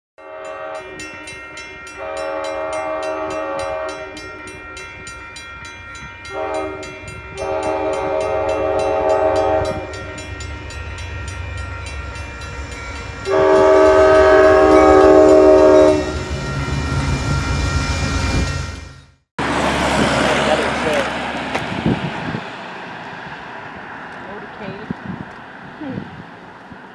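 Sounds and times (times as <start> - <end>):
train horn blasts: 0.2 - 5.2, 6.0 - 10.5, 13.2 - 18.5
rumble of passing train: 0.3 - 26.9.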